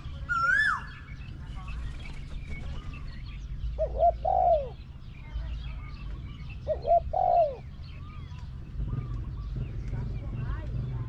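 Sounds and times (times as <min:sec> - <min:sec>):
dove cooing: 0:03.8 - 0:04.8, 0:06.6 - 0:07.7.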